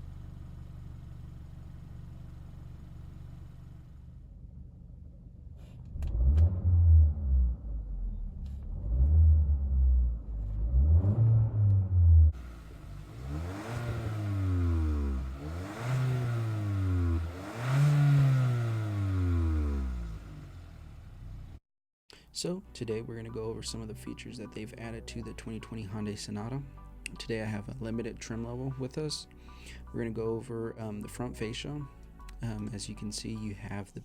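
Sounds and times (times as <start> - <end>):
car engine idling and revving: 0.0 - 21.6.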